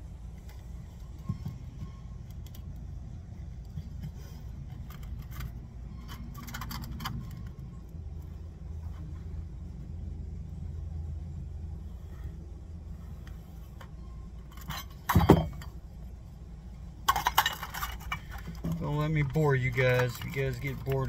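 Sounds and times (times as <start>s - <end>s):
steady low rumble: 0.0s - 21.0s
small tools clicking and rattling: 3.6s - 8.0s, 17.0s - 21.0s.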